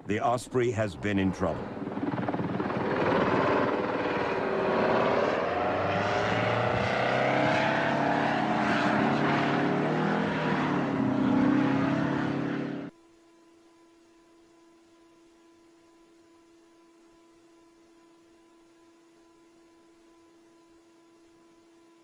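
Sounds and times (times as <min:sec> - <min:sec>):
aircraft engines and rotors roaring: 0:00.0 - 0:12.9
faint hum: 0:00.0 - 0:22.0.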